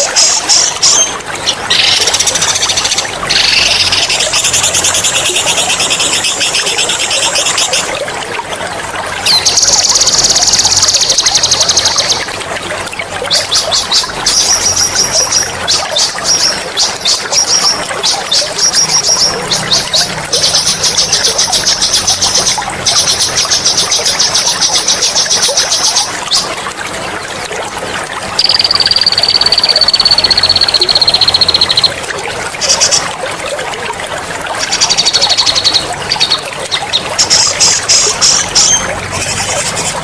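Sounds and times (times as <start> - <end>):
water trickling: 0.0 - 40.0
songbird trilling: 28.4 - 32.0.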